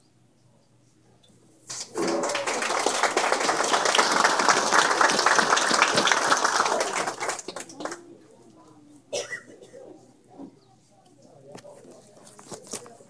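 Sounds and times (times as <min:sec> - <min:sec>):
crowd applauding: 0:01.8 - 0:08.0.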